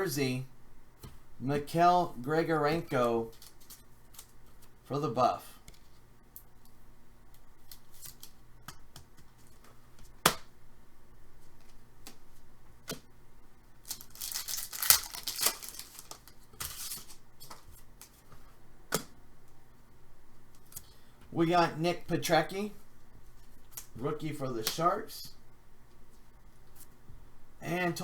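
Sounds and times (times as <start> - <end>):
wrapper crinkling and tearing: 13.8 - 17.2.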